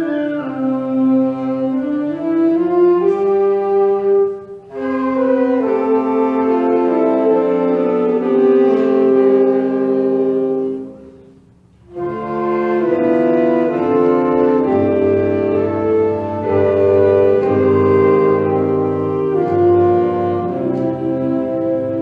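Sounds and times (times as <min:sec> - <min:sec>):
wind band playing: 0:00.0 - 0:22.0.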